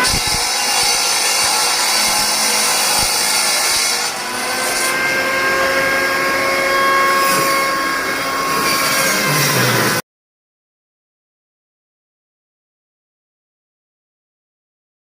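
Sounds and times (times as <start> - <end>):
band sawmill whining: 0.0 - 10.0.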